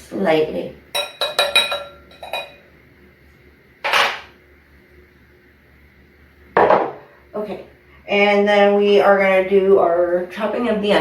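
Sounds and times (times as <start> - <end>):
bowl and utensil clattering: 1.0 - 2.6
fork clinking against bowl: 1.0 - 2.6.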